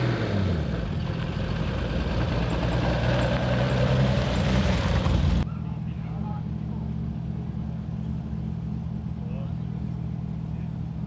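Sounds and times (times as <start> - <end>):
car engine passing slowly: 0.0 - 11.0.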